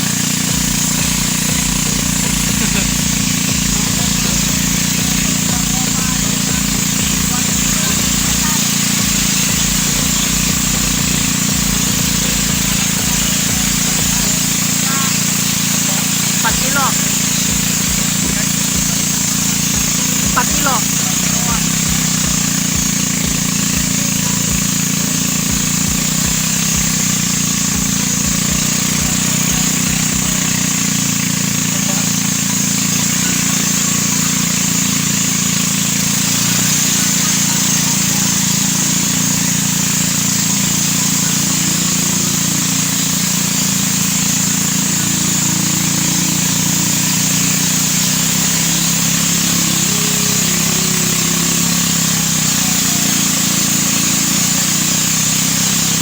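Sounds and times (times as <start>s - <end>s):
low rumbling bumps: 0.0s - 14.8s
road and air noise hiss: 0.0s - 56.0s
vehicle engine running: 0.0s - 56.0s.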